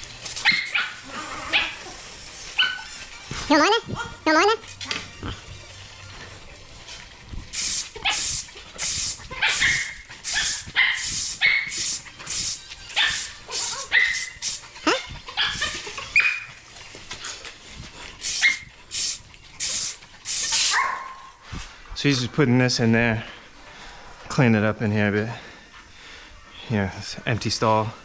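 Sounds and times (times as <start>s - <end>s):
dog barking and yipping: 0.4s - 2.9s, 8.0s - 8.4s, 9.2s - 11.8s, 12.9s - 16.6s, 18.4s - 18.7s, 20.6s - 21.3s.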